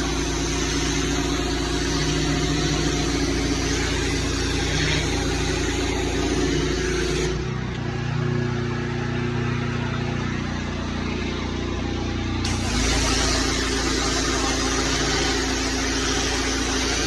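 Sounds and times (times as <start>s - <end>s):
small petrol engine running: 0.0s - 17.0s
loud hiss: 12.5s - 17.0s.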